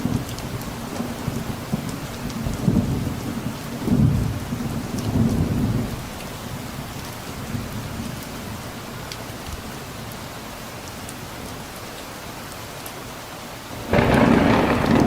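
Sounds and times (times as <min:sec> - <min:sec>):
steady rain: 0:00.0 - 0:15.0
distant thunder rumbling: 0:13.8 - 0:15.0.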